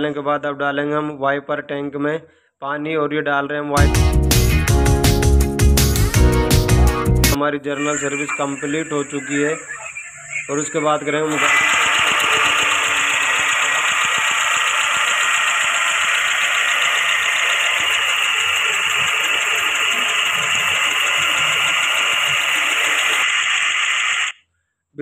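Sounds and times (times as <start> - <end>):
car engine idling: 7.8 - 23.3.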